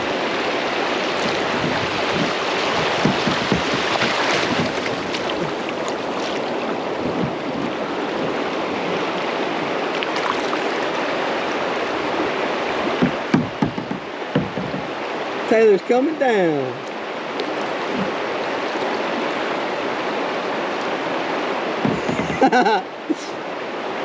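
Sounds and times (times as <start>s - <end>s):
whitewater rushing: 0.0s - 24.0s
sharp hits on kayak: 1.6s - 5.3s, 12.9s - 14.9s.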